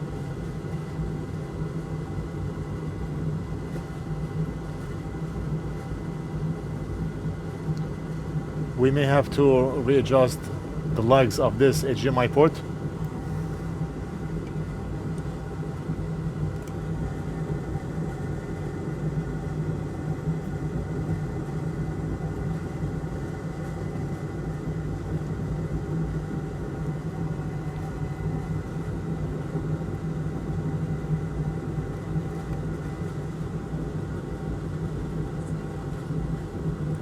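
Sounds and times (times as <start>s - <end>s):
electric fan motor humming: 0.1s - 25.2s.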